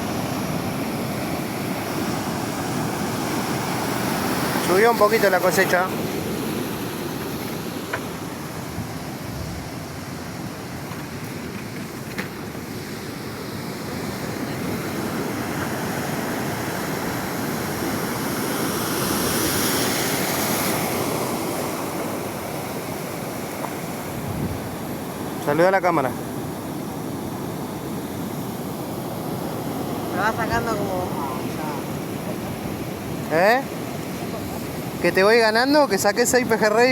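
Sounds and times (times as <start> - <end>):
sea surf washing: 0.0 - 36.9
wind on microphone: 8.3 - 11.4, 24.0 - 25.2.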